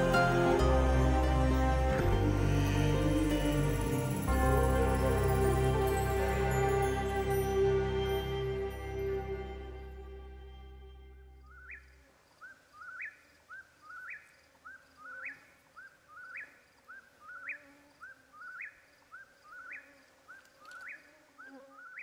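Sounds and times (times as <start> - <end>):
bird calling: 11.4 - 22.0.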